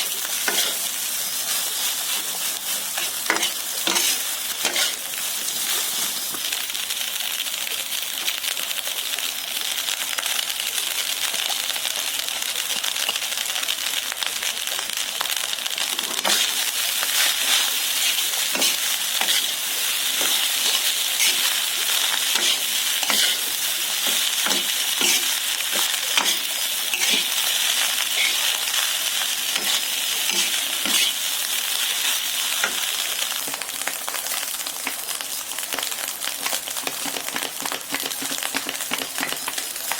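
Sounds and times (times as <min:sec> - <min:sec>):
food sizzling in a pan: 0:00.0 - 0:39.9
spatula scraping a pan: 0:00.4 - 0:00.9, 0:01.5 - 0:06.4, 0:16.0 - 0:27.4, 0:29.6 - 0:31.2.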